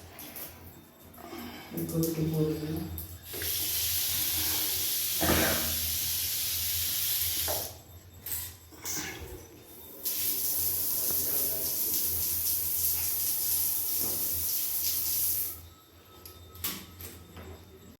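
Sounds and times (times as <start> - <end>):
shower water spraying: 3.3 - 7.7, 10.0 - 15.6.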